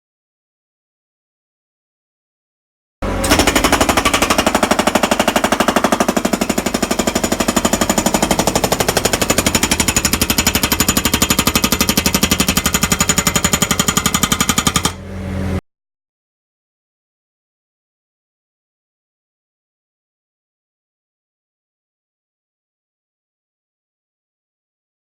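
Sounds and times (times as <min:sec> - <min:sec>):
skid steer engine running: 0:03.0 - 0:15.6
hydraulic breaker hammering concrete: 0:03.1 - 0:15.0.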